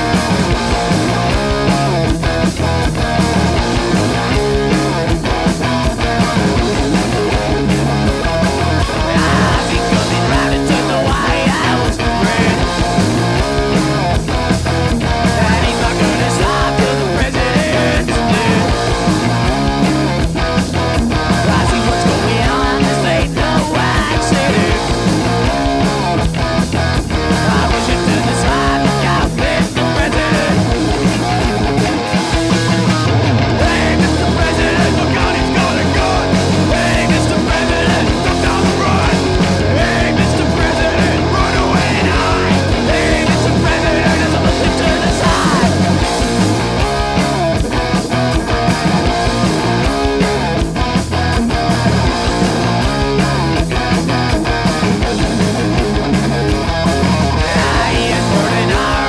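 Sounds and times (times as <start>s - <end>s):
punk rock band playing live: 0.0s - 59.0s.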